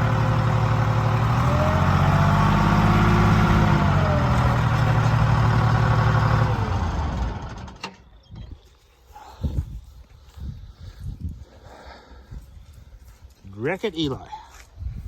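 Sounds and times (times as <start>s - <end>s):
tractor diesel engine running: 0.0s - 8.1s.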